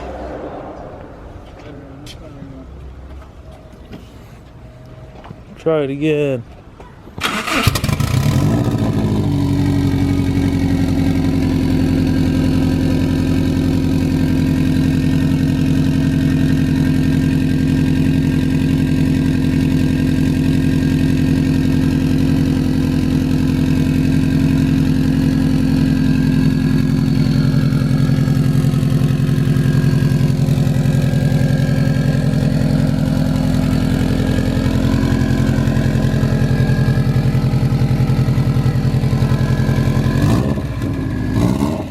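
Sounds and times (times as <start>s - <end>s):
car engine idling: 7.2s - 41.9s.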